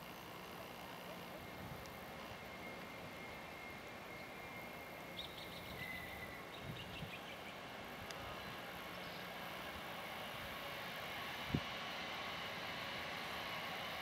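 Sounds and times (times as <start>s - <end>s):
faint high chirps: 2.2s - 7.6s.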